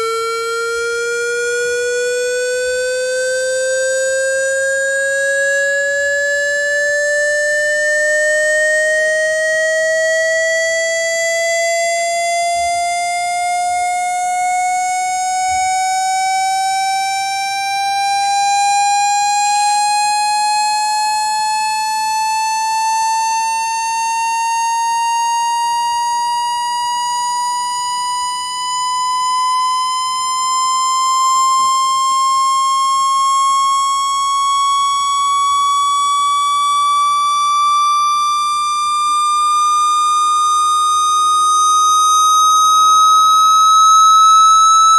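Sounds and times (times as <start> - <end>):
buzzy electronic tone rising: 40.2 - 44.9.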